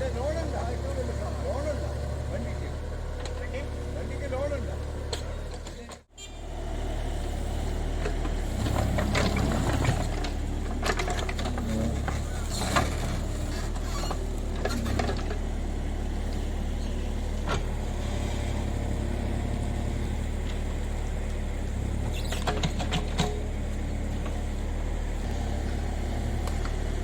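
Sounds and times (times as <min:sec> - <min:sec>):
excavator diesel engine running: 0:00.0 - 0:27.0
digging knocks and clanks: 0:04.8 - 0:06.1, 0:08.0 - 0:18.9, 0:20.4 - 0:24.6, 0:25.3 - 0:27.0.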